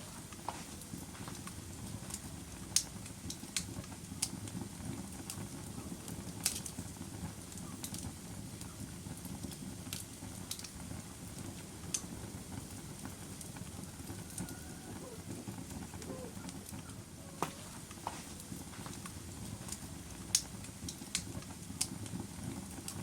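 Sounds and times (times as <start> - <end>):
log fire crackling: 0.0 - 23.0
sharp pops and snaps of fire: 0.0 - 23.0.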